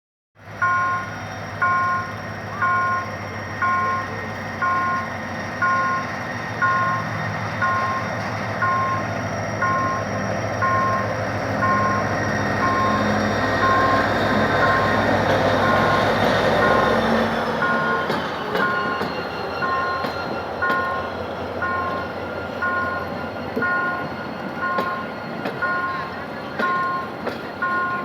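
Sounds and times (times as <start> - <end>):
locomotive engine rumble and whine: 0.4 - 28.0
two-tone electronic warning beep: 0.6 - 16.0, 17.6 - 28.0.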